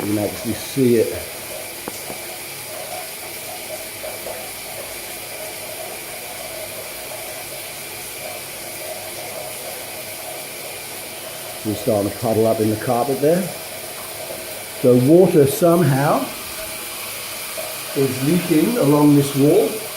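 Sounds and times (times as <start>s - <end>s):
steady hiss: 0.0s - 19.9s.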